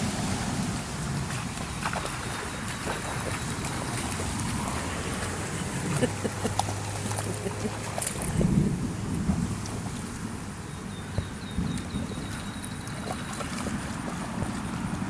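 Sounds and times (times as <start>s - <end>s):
rain: 0.0s - 1.8s, 7.6s - 10.9s
wind: 0.0s - 15.0s.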